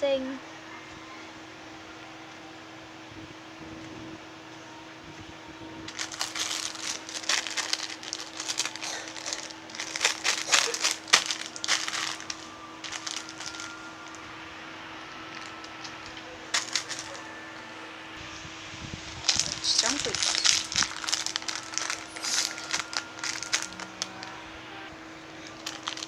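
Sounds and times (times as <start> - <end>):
faint steady hum: 0.0 - 26.0
plastic wrapping crinkling: 5.9 - 14.3, 15.2 - 17.3, 18.9 - 24.4, 25.4 - 26.0.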